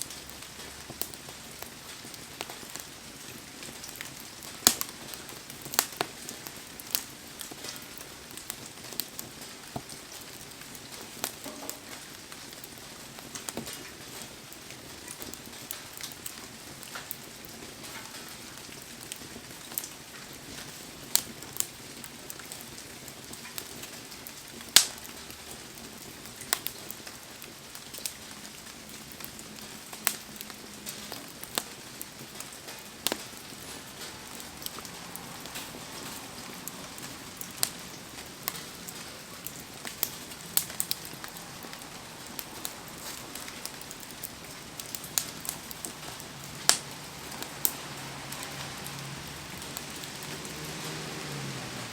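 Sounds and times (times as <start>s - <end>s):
wood fire crackling and popping: 0.0s - 51.9s
heavy rain hissing: 30.6s - 51.9s.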